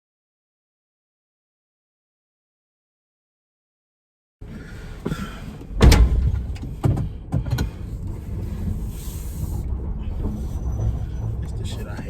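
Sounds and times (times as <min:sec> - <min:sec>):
vehicle low rumble: 0:04.4 - 0:12.0
van door slamming: 0:05.0 - 0:07.8.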